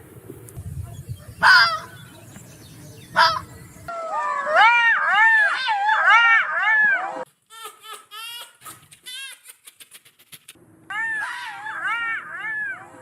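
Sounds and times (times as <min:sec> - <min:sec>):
birds calling harshly: 0:00.8 - 0:04.2.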